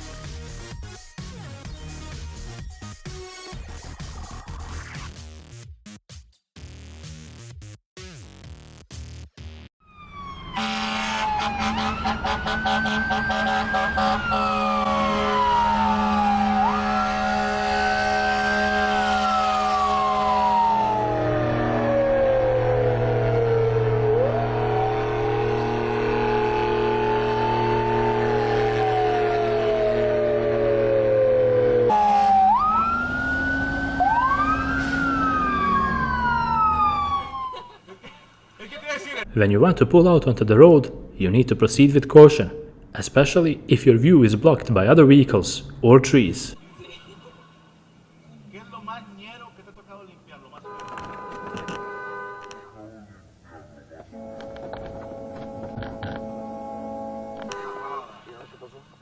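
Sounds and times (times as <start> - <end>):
fire engine siren wailing: 9.8 - 37.9, 54.1 - 59.0
engine hum: 10.0 - 37.6, 39.3 - 58.6
low drone: 20.0 - 37.4.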